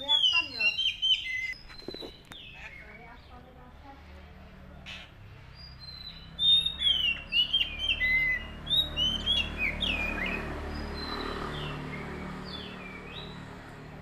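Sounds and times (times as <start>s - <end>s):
bird chirping: 0.0s - 3.9s, 4.6s - 14.0s.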